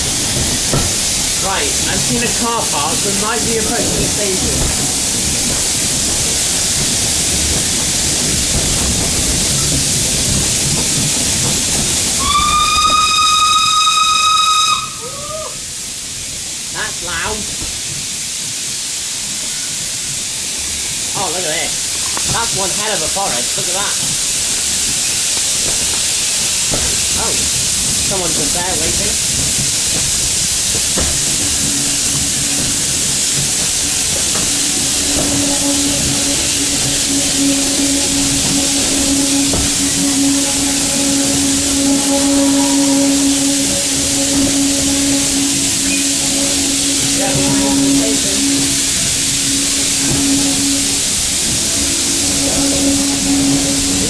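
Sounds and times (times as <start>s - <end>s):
steam locomotive whistle: 0.0s - 16.2s, 26.6s - 54.0s
steam hissing: 0.0s - 54.0s
train running: 0.0s - 54.0s
steady low tone: 31.2s - 54.0s
higher tone: 31.4s - 54.0s.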